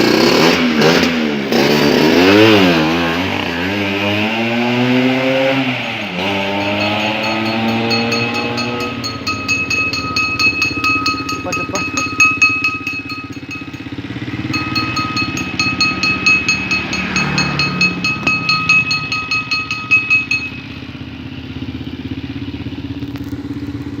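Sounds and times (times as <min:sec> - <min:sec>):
scooter engine idling: 0:06.3 - 0:24.0.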